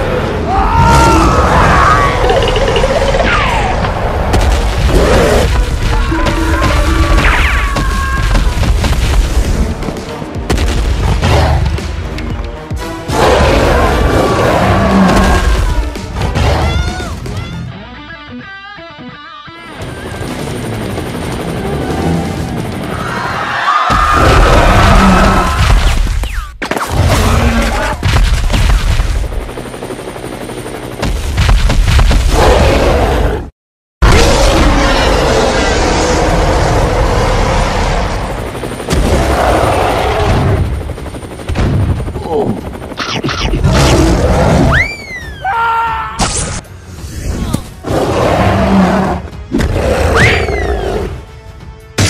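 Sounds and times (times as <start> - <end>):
helicopter rotor chopping: 1.2 - 10.4, 19.6 - 25.6, 27.5 - 32.0, 35.1 - 45.4
music: 4.9 - 24.1, 46.7 - 52.0.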